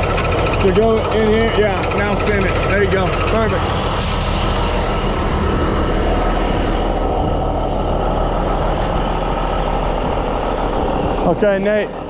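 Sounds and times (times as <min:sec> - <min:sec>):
truck engine idling: 0:00.0 - 0:12.0
compressed air hiss: 0:04.0 - 0:05.4.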